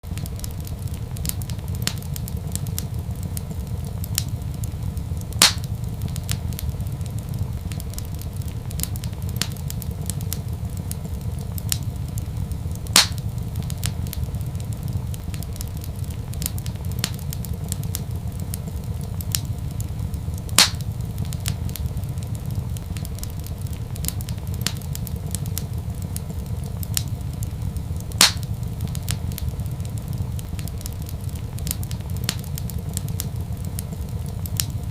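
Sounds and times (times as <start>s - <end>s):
fire pops: 0.0s - 34.9s
low rumble: 0.0s - 34.9s
wood fire crackling: 0.0s - 34.9s.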